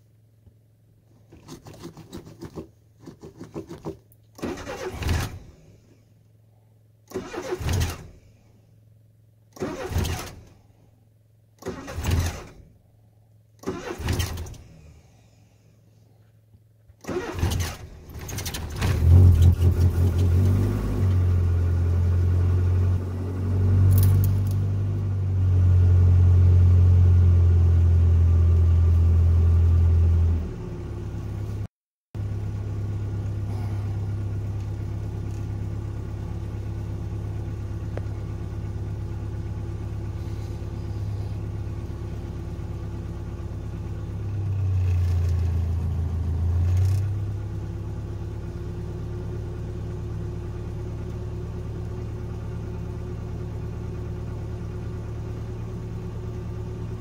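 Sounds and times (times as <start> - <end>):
starter motor cranking: 4.4 - 5.4
car engine idling: 32.2 - 57.0.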